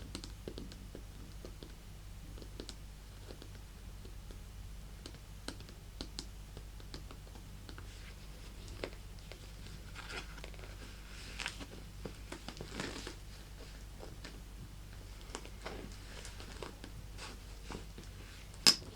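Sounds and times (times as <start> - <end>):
crinkly rustling handling: 7.8 - 18.5.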